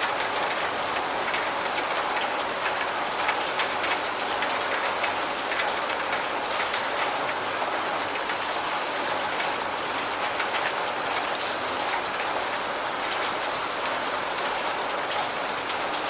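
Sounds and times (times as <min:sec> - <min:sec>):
rain pattering on a surface: 0:00.0 - 0:16.0.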